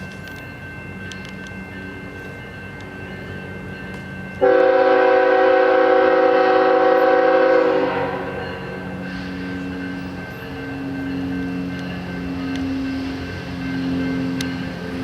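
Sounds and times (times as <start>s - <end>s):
train rumbling: 0.0s - 15.0s
locomotive air horn blast: 4.4s - 8.4s.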